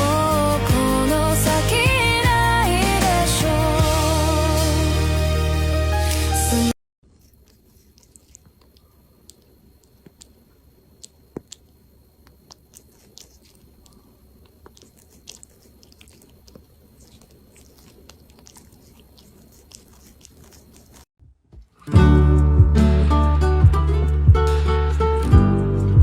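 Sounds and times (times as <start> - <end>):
animal chewing food: 7.0 - 21.1.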